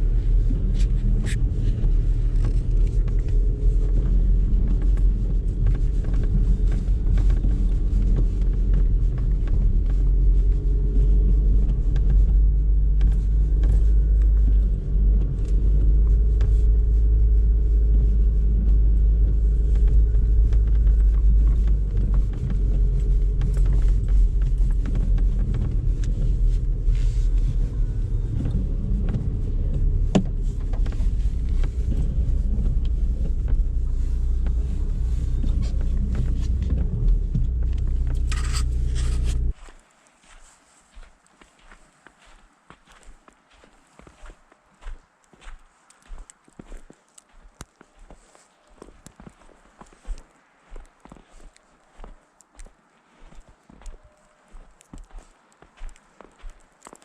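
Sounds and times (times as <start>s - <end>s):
car road and engine rumble: 0.0s - 39.6s.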